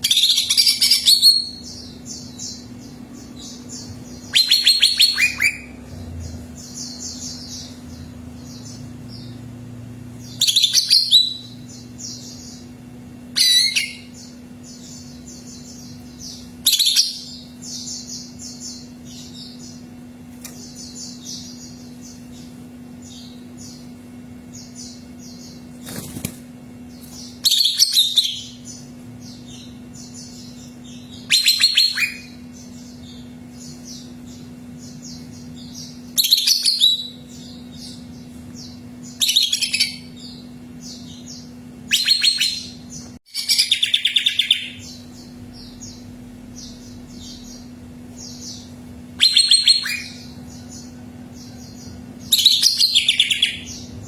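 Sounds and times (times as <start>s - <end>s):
bird singing high phrases: 0.0s - 9.5s, 10.1s - 26.0s, 26.9s - 54.0s
faint bird chirps: 0.0s - 9.5s, 27.0s - 54.0s
faint steady hum: 0.0s - 54.0s.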